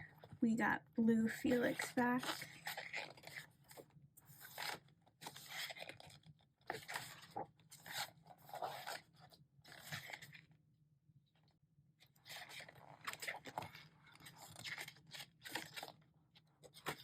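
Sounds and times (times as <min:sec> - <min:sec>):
paper pages turning: 0:01.4 - 0:10.4, 0:12.2 - 0:16.0.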